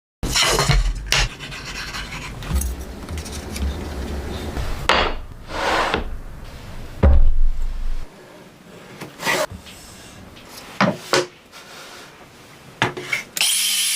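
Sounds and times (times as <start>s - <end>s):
sharp knock and thump: 7.0s - 8.1s.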